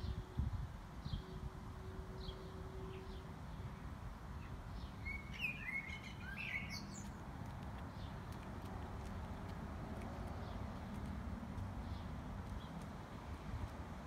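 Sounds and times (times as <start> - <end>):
small birds chirping: 4.4 - 14.0.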